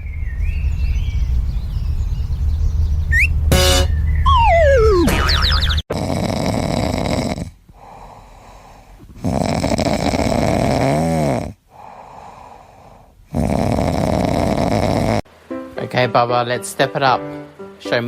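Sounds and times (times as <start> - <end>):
whistle in snore: 3.1 - 5.0
person snoring: 5.9 - 15.2
quiet breaths: 6.0 - 15.2.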